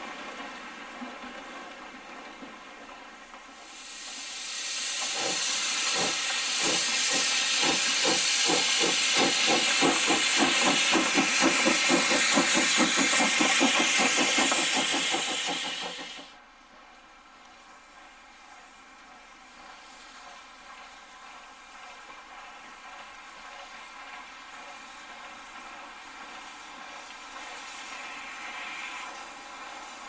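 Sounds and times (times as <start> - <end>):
loud hiss of steam: 3.5 - 16.4, 21.2 - 30.0
locomotive exhaust beats: 3.7 - 16.3.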